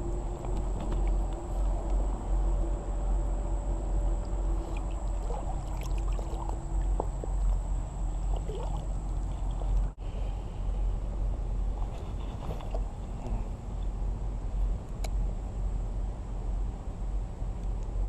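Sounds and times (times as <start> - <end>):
creek water flowing: 0.0 - 10.0
wind rumble on microphone: 0.0 - 18.0.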